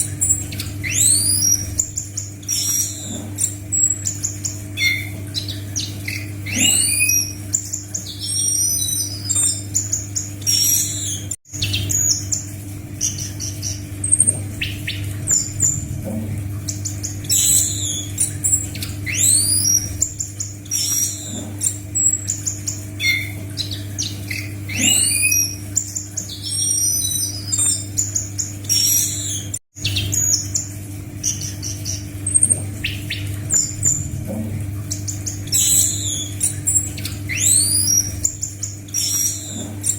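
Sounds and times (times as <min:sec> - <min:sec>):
steady low hum: 0:00.0 - 0:39.9
thrush whistles and chirps: 0:00.2 - 0:09.6, 0:16.7 - 0:30.6, 0:34.9 - 0:39.9.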